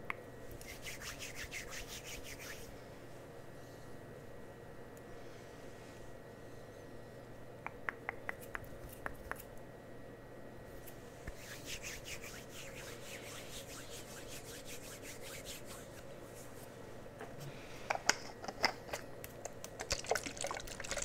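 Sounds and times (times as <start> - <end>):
scratchy rubbing on microphone: 11.3 - 16.6.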